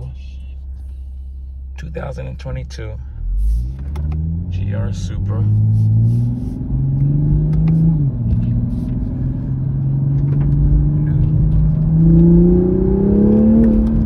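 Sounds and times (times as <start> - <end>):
car engine accelerating hard: 3.1 - 14.0.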